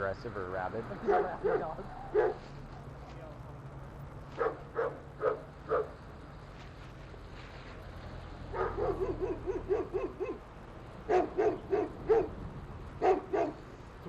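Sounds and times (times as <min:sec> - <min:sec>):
large dog barking deeply: 0:01.0 - 0:02.4, 0:08.5 - 0:10.4, 0:11.0 - 0:12.4, 0:13.0 - 0:13.6.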